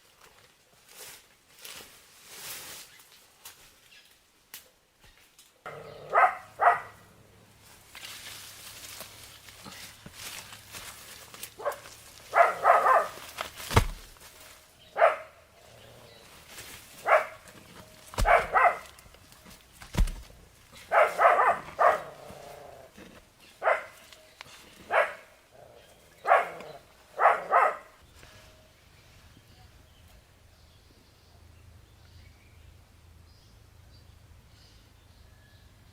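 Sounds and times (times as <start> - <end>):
dog barking: 5.7 - 7.0, 11.6 - 13.2, 15.0 - 15.4, 17.0 - 17.4, 18.2 - 19.0, 20.8 - 22.2, 23.6 - 24.0, 24.9 - 25.3, 26.2 - 28.0
dull thumps: 13.2 - 14.3, 17.5 - 20.5.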